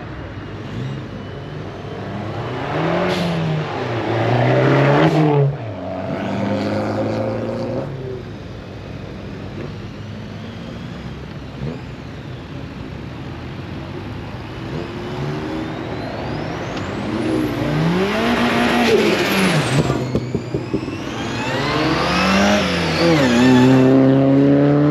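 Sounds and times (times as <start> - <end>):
cars driving past: 0.0 - 24.9
car engine revving: 0.6 - 8.3, 14.0 - 24.9.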